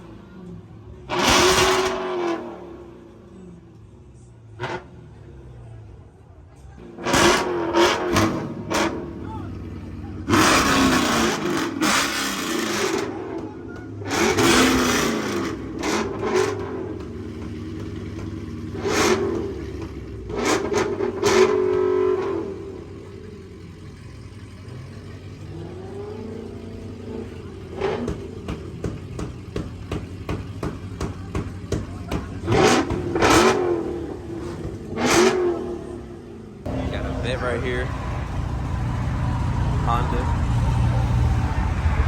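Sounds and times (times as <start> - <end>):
car engines revving: 0.0 - 42.0
sharp exhaust pops: 27.8 - 33.6.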